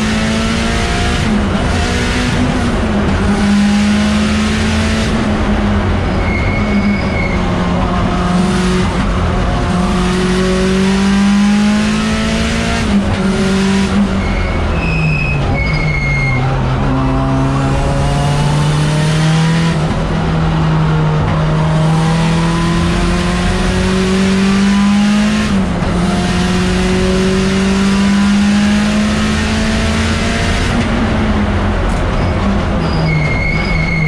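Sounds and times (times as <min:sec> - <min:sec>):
race car engine revving: 0:00.0 - 0:33.0.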